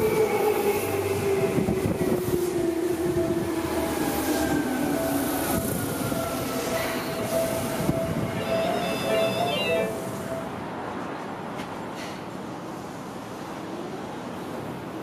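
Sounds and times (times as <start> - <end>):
wheel squeal: 8.4 - 9.9.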